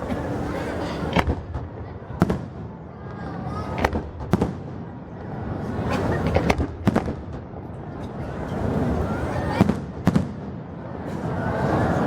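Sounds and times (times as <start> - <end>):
background rumble: 0.0 - 8.0
fireworks bangs: 1.1 - 5.4, 6.3 - 7.7, 9.5 - 10.8.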